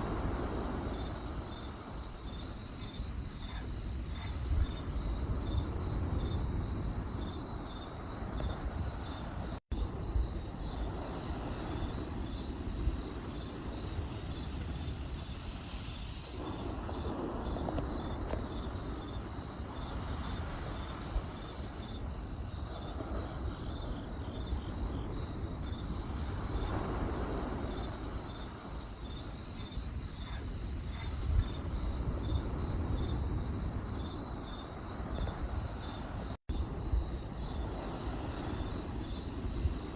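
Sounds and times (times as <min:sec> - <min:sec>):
campfire burning: 0:00.0 - 0:39.9
crickets chirping: 0:00.0 - 0:39.9
fire crackling and popping: 0:10.8 - 0:36.4.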